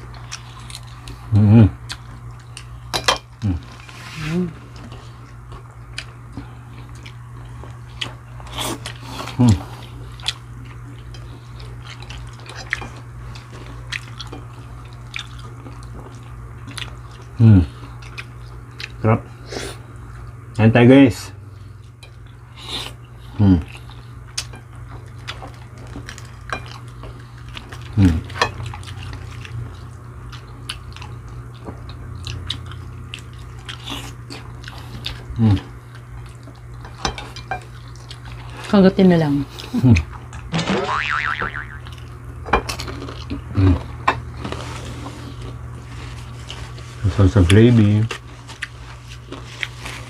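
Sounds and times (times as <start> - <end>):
steady low hum: 0.0 - 50.0
wet chewing and lip smacking: 1.8 - 2.7, 7.8 - 17.3, 17.9 - 19.0, 23.8 - 36.9.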